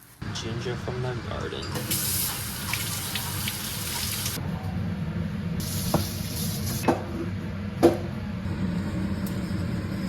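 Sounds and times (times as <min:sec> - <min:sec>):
steady low hum: 0:04.4 - 0:10.0.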